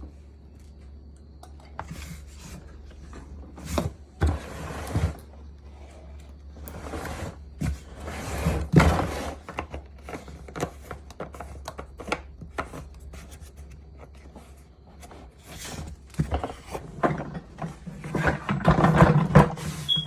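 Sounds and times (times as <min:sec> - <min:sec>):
plastic parts knocking and clicking: 0:16.1 - 0:20.0.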